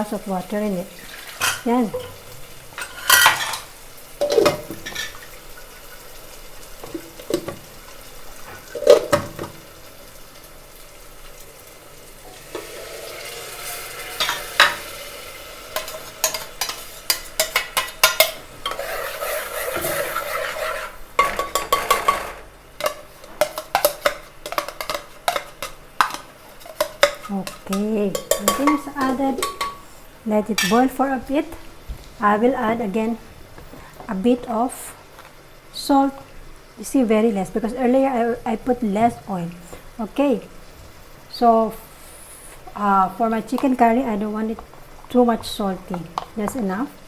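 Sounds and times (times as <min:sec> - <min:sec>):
paste sizzling: 0:00.0 - 0:36.8, 0:39.3 - 0:47.0
spoon scraping metal pot: 0:02.8 - 0:05.2, 0:13.6 - 0:14.9, 0:15.7 - 0:30.0
spoon knocking on metal: 0:21.2 - 0:26.2, 0:26.8 - 0:29.8.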